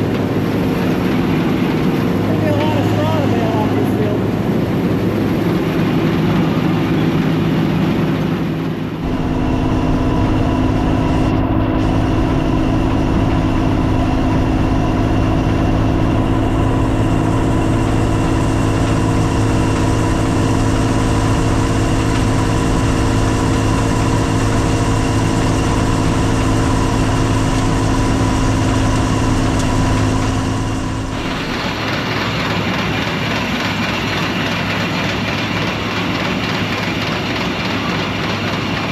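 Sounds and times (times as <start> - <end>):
higher drone: 0.0 - 34.4
combine harvester engine: 0.0 - 38.9.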